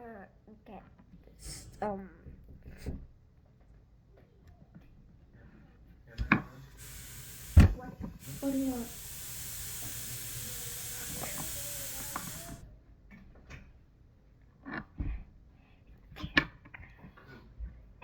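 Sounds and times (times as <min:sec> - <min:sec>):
aerosol can spraying: 0:06.8 - 0:12.6.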